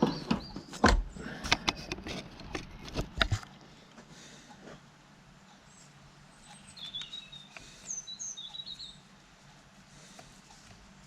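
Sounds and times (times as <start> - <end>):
faint clicks: 5.5 - 8.8
small bird chirping: 5.6 - 9.1.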